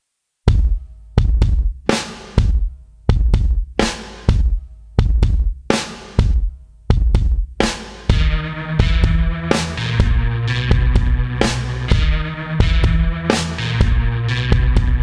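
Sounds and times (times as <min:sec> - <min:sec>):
heavy drum beat: 0:00.5 - 0:15.0
sustained bass notes: 0:08.1 - 0:15.0.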